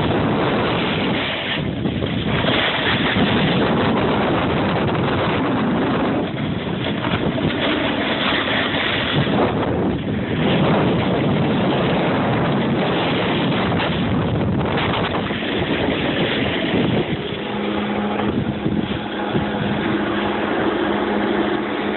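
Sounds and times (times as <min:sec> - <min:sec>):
snowboard scraping over snow: 0:00.0 - 0:21.9
steady low hum: 0:00.0 - 0:21.9
wind on microphone: 0:00.0 - 0:21.9.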